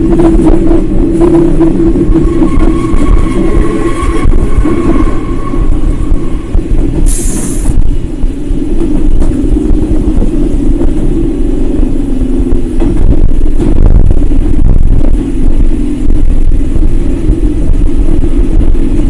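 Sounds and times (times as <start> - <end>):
train wheels rumbling: 0.0 - 19.0
short hiss: 7.0 - 7.8.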